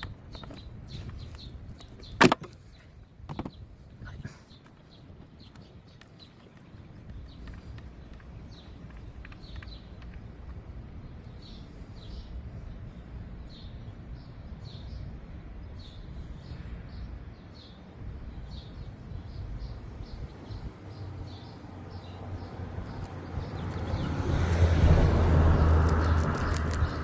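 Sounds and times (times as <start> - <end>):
low outdoor rumble: 0.0 - 27.0
small bird chirping: 22.8 - 24.4.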